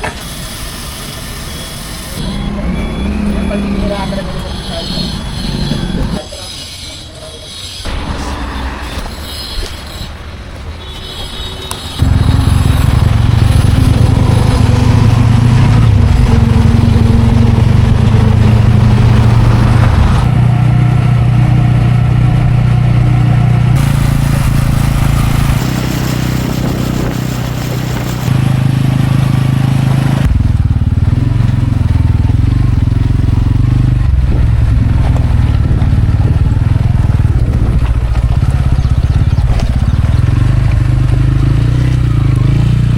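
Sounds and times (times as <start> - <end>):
tractor diesel engine running: 12.0 - 42.9.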